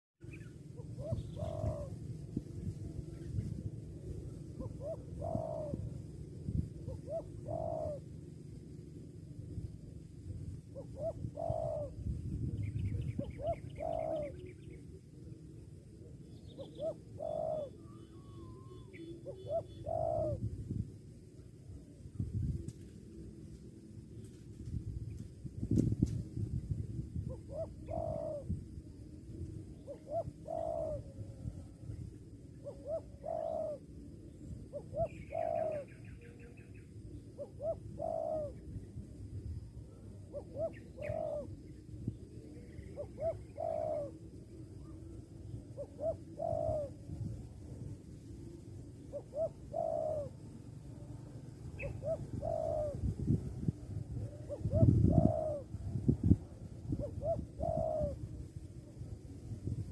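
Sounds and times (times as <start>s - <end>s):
bird trilling call: 0.2s - 2.0s, 4.6s - 5.9s, 6.9s - 8.0s, 10.8s - 14.8s, 16.3s - 20.4s, 29.8s - 31.1s, 32.5s - 33.8s, 34.7s - 38.6s, 40.3s - 41.6s, 42.6s - 44.2s, 49.1s - 50.4s, 51.7s - 53.0s
low steady rumble: 0.2s - 59.9s
dove cooing: 0.3s - 8.2s, 9.3s - 21.0s, 27.2s - 59.3s.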